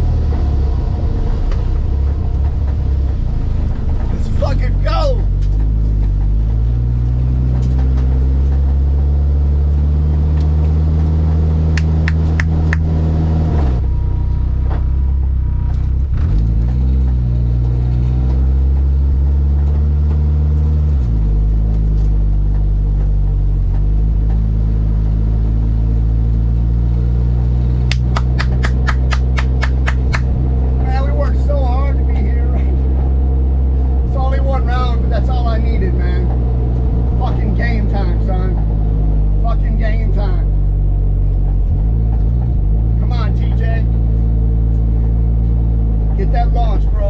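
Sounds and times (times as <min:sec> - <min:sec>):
sharp clicks: 0:11.8 - 0:13.0, 0:27.9 - 0:30.4.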